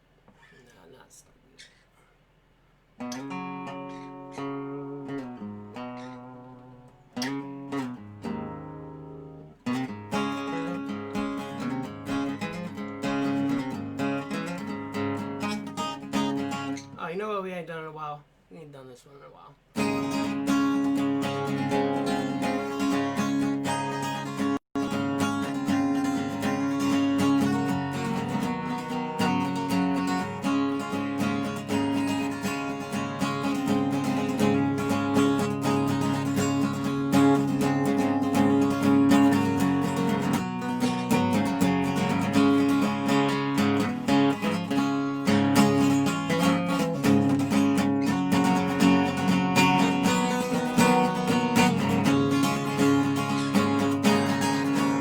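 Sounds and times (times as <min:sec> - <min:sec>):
resonator guitar blues: 0:03.0 - 0:17.1, 0:19.6 - 0:55.0.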